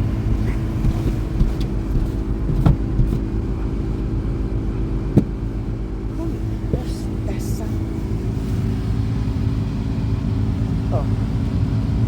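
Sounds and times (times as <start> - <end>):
car engine running: 0.0 - 12.0
short knocks: 0.3 - 3.4, 5.1 - 5.5.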